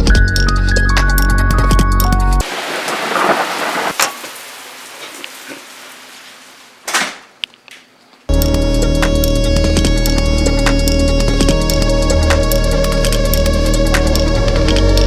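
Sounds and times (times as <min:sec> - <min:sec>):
thunder rumbling: 0:02.3 - 0:06.9
rain hissing: 0:02.3 - 0:07.4
sharp thunder crack: 0:02.4 - 0:04.8.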